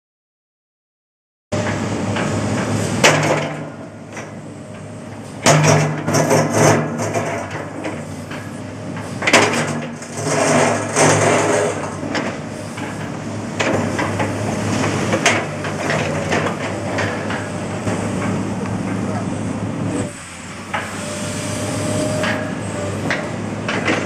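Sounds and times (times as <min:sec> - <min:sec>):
excavator diesel engine running: 0:01.6 - 0:24.0
bucket scraping concrete slabs: 0:09.3 - 0:12.3.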